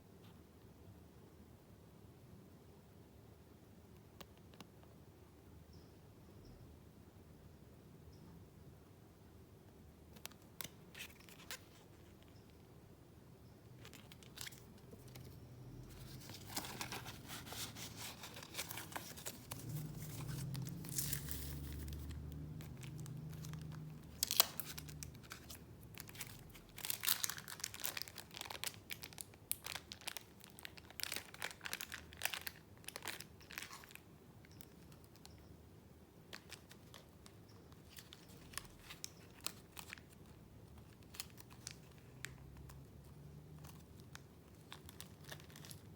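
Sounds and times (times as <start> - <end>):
paper rustling and crinkling: 10.2 - 12.3, 13.8 - 34.0, 36.3 - 42.8, 43.6 - 45.9.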